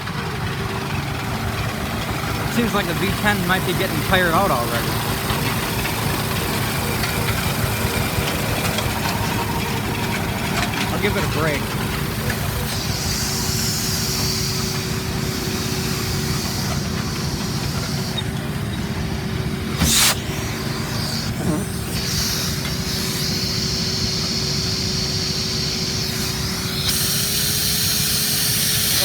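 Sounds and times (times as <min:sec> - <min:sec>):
machinery humming and rumbling: 0:00.0 - 0:29.0
high hiss: 0:11.0 - 0:18.7, 0:19.6 - 0:29.0.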